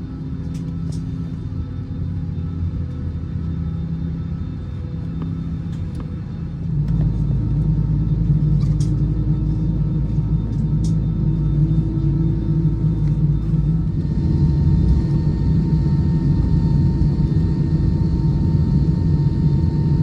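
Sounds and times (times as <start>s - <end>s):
jet engine cabin rumble: 0.0s - 20.0s.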